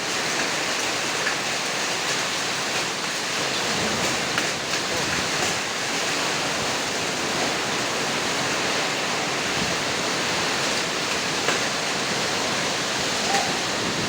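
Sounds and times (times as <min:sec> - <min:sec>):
heavy rain and hail: 0:00.0 - 0:14.0
strong wind: 0:03.6 - 0:14.0.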